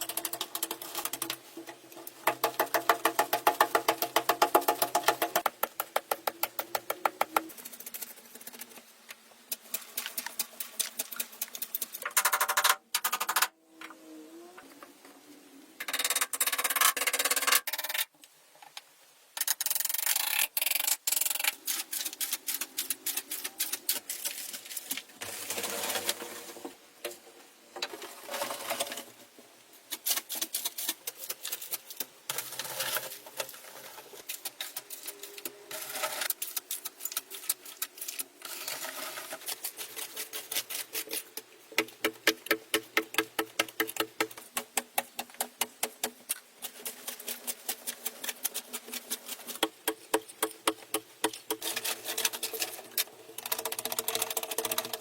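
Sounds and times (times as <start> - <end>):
hand tool scraping: 9.5 - 12.5, 29.9 - 55.0
sharp taps and clicks: 41.8 - 46.4.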